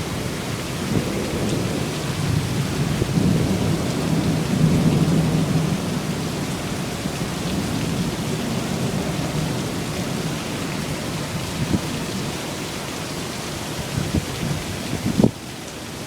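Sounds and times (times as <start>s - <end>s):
low thunder rumble: 0.0s - 12.4s
heavy rain pouring: 0.0s - 16.0s.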